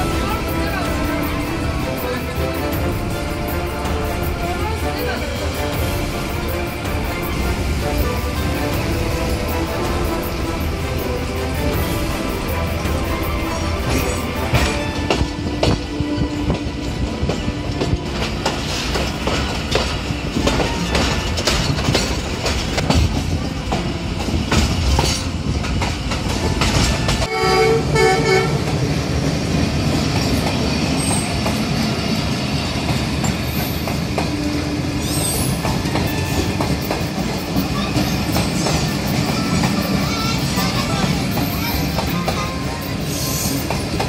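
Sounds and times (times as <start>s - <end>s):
train wheels clacking on rails: 0.0s - 27.4s, 28.2s - 44.0s
passing train low rumble: 0.0s - 44.0s
train horn: 27.2s - 28.8s.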